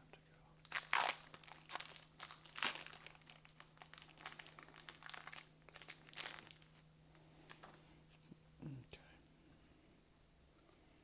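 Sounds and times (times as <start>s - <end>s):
foil wrapper crinkling: 0.6s - 7.8s.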